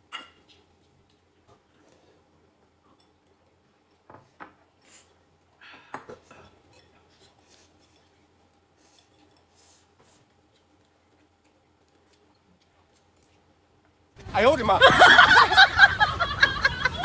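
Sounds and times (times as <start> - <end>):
tableware clinking and scraping: 0.0 - 0.7, 2.8 - 11.3.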